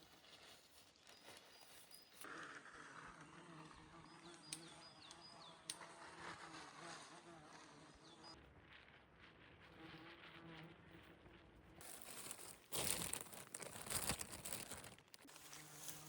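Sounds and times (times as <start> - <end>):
insect buzzing: 15.3 - 16.0.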